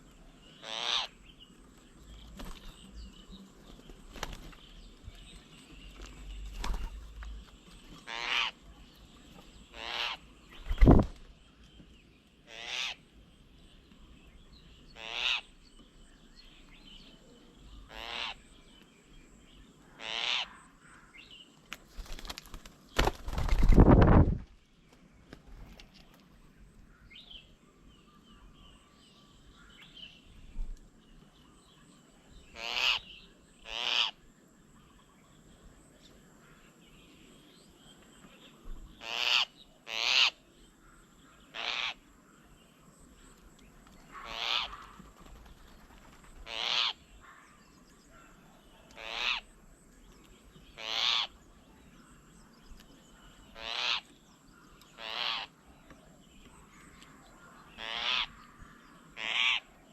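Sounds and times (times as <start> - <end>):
bird calling: 0.0 - 11.8, 14.9 - 15.9, 16.5 - 18.6, 19.7 - 21.3, 32.5 - 34.2, 38.3 - 42.1, 43.7 - 49.5, 50.5 - 59.9.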